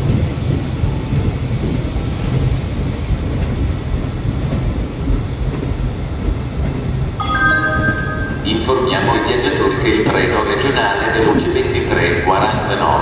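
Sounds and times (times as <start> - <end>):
train wheels rumbling: 8.4 - 13.0.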